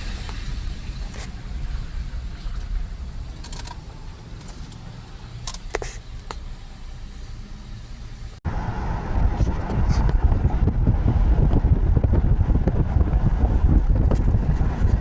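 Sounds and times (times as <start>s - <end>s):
car driving through water: 0.0s - 5.4s.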